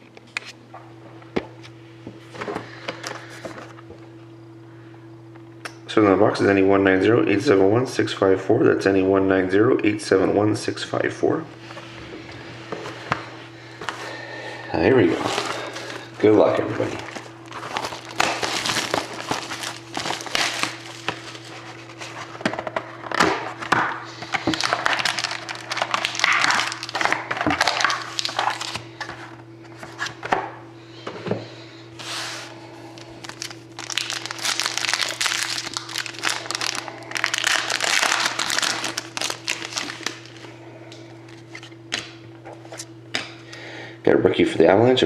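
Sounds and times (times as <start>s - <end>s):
card pack wrappers tearing and crinkling: 15.0s - 16.0s, 16.7s - 30.2s, 32.0s - 40.5s.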